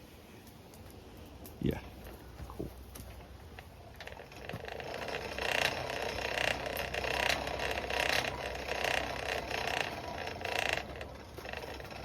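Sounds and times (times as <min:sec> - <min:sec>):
hand-cranked blower whirring: 0:04.0 - 0:12.0.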